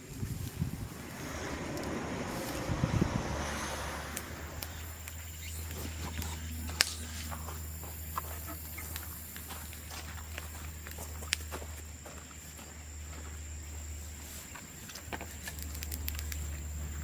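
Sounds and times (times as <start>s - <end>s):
bonfire crackling: 0.0s - 11.6s, 15.0s - 17.0s.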